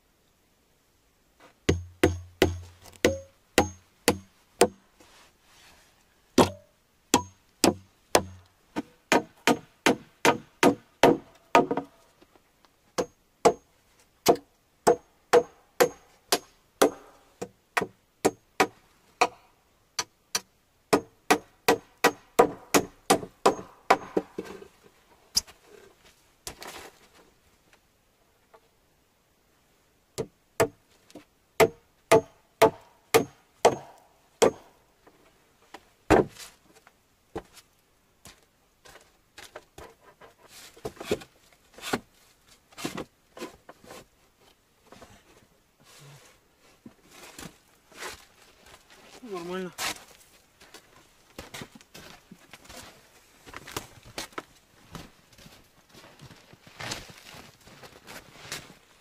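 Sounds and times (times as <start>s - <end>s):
hammer knocking nails into wood: 1.7s - 4.8s.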